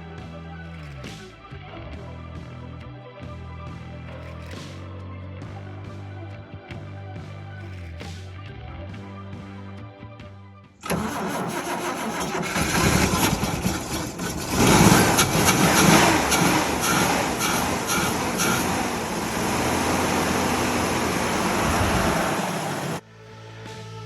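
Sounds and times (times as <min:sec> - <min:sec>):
car engine starting and idling: 0:10.8 - 0:23.0.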